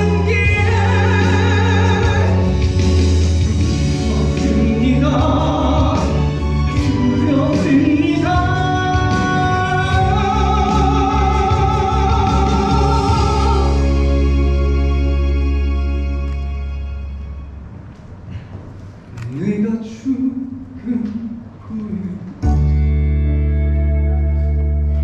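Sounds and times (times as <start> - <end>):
man singing a ballad: 0.0 - 2.8, 3.6 - 14.3, 19.4 - 22.5.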